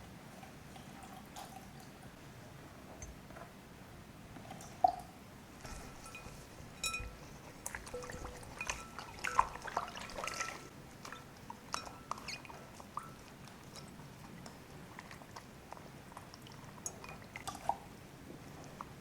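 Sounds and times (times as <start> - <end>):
water splashing and dripping: 7.6 - 17.9.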